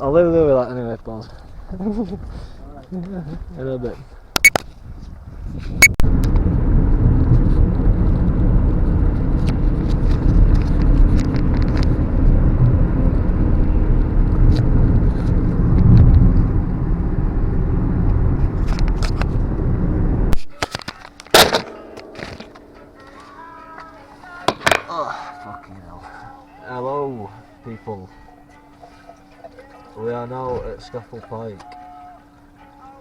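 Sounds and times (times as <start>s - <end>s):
car road and engine rumble: 5.2s - 20.4s.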